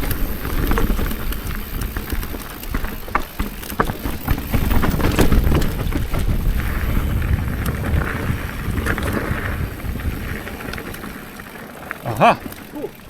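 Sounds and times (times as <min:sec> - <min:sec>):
bike rolling on rough trail: 0:00.0 - 0:13.0
wind buffeting microphone: 0:04.7 - 0:11.1.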